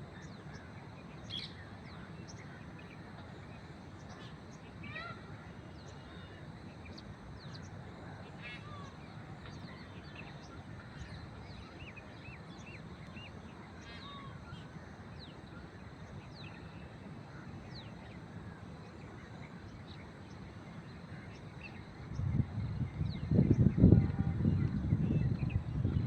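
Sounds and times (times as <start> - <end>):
small birds chirping: 0.2 - 26.0
steady low rumble: 5.6 - 26.0.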